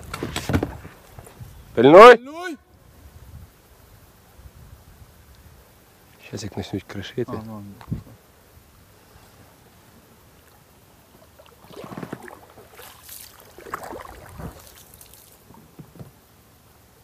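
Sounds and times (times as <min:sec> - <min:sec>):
water splashing and sloshing: 0:10.4 - 0:16.1.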